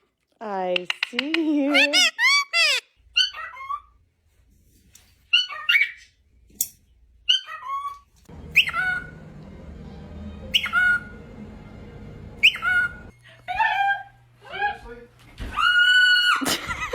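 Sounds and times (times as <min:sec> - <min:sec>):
parrot squawking and chirping: 0:00.8 - 0:04.0, 0:05.3 - 0:06.2, 0:07.2 - 0:14.2
steady low hum: 0:08.3 - 0:13.5.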